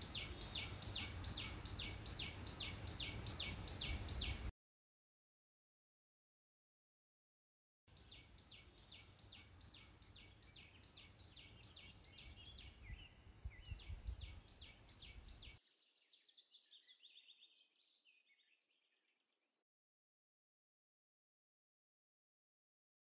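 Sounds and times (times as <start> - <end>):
small bird chirping: 0.0 - 4.5, 7.9 - 19.6.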